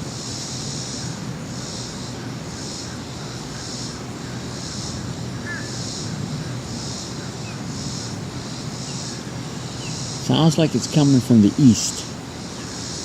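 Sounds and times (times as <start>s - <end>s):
high-pitched pulsing buzz: 0.0s - 13.0s.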